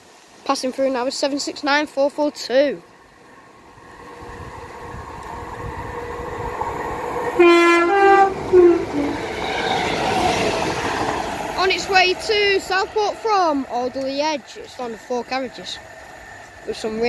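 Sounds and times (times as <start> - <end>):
train rumbling: 0.0 - 17.0
train horn blasts: 7.4 - 9.2.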